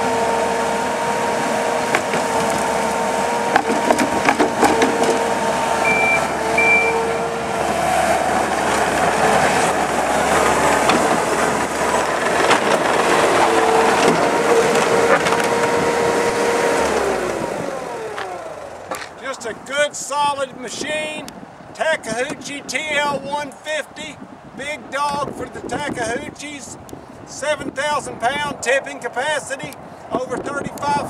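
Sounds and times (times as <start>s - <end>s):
diesel loader engine running: 0.0s - 20.3s
short beeps: 5.8s - 7.3s.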